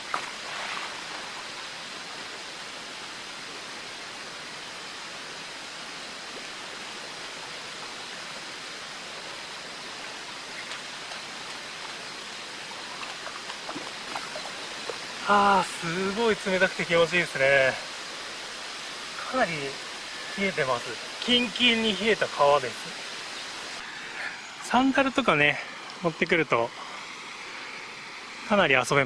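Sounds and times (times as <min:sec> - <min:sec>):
water rushing and babbling: 0:00.0 - 0:29.0
faint small splashes: 0:12.7 - 0:15.3.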